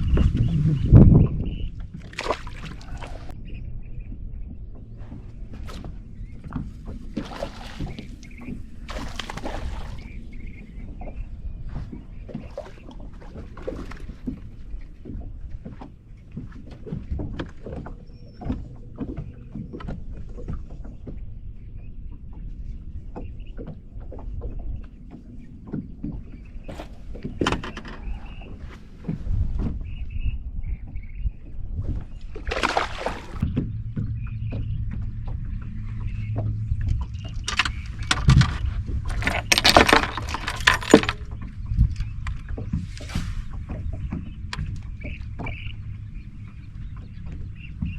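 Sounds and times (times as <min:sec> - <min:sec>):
knocks and clatter on a boat: 0:00.0 - 0:47.9
wind rumble on microphone: 0:00.0 - 0:47.9
steady low hum: 0:28.0 - 0:47.9.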